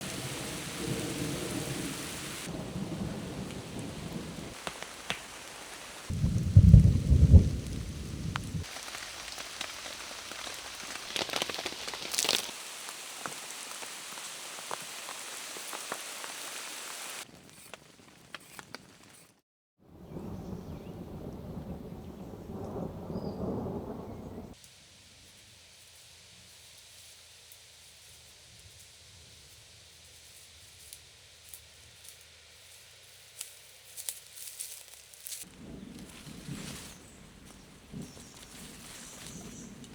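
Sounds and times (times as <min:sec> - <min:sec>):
thunder rolling: 0:00.0 - 0:04.6, 0:06.1 - 0:08.7, 0:19.9 - 0:24.6
heavy rain pattering: 0:00.0 - 0:17.2, 0:20.2 - 0:24.6.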